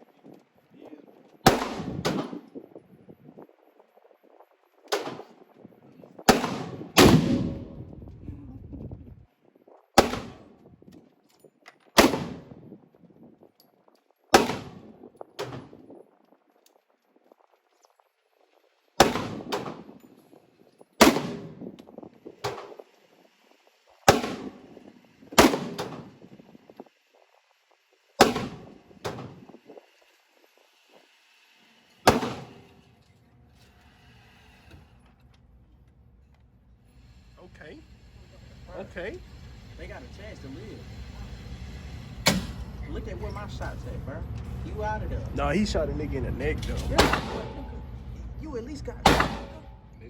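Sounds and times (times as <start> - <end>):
pistol shots with echo: 1.4 - 2.5, 6.3 - 8.0, 10.0 - 10.6, 12.0 - 12.6, 14.3 - 15.7, 19.0 - 20.0, 21.0 - 21.6, 24.1 - 24.8, 25.4 - 26.2, 28.2 - 29.4, 32.1 - 32.6, 46.8 - 47.8, 49.0 - 49.8
quieter sharp cracks: 49.0 - 50.0.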